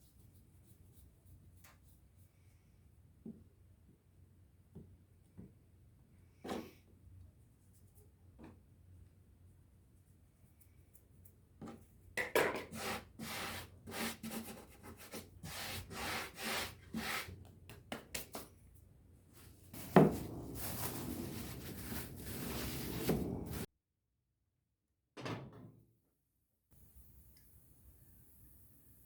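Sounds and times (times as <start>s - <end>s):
rolling pin rubbing on dough: 12.7s - 17.4s, 19.8s - 23.7s.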